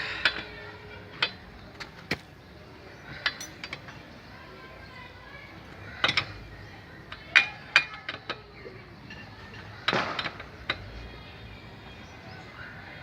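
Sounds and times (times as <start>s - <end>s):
metal tools clinking and knocking: 3.1s - 4.1s.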